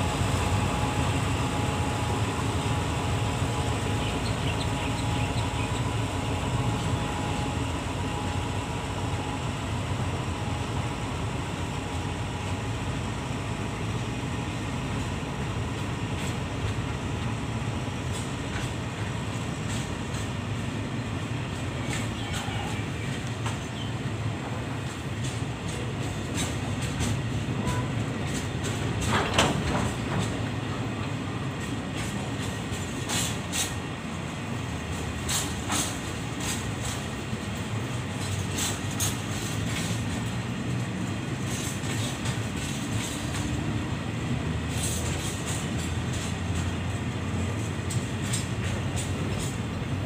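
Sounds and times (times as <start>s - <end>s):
freight train rumbling: 0.0s - 50.0s
wheels clacking over rail joints: 21.2s - 34.0s, 34.6s - 50.0s.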